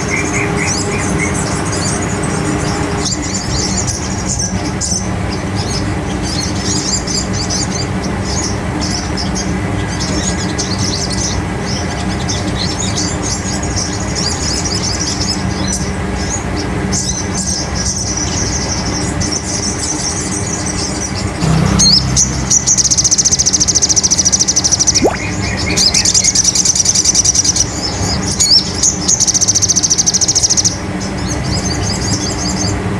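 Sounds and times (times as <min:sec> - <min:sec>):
bird chirping and trilling: 0:21.9 - 0:30.7.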